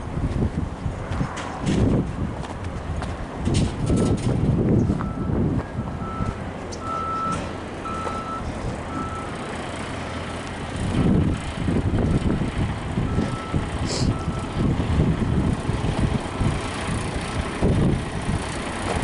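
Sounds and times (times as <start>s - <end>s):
engine rumbling: 0.0s - 19.0s
reversing alarm beeping: 3.8s - 4.2s, 4.9s - 9.4s, 13.1s - 14.6s.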